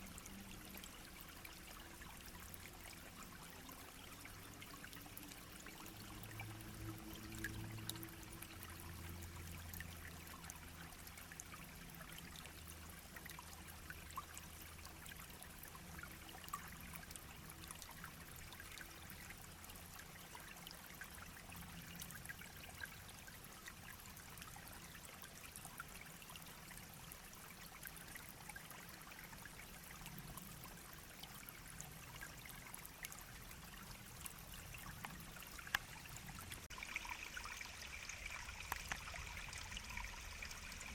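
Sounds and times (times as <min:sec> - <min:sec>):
brook babbling: 0:00.0 - 0:40.9
small splashes and drips: 0:00.0 - 0:40.9.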